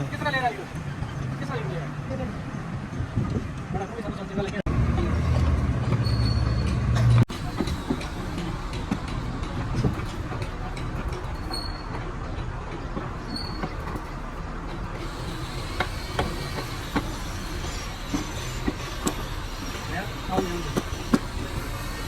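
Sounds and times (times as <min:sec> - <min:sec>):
mechanical rumble: 0:06.7 - 0:22.0.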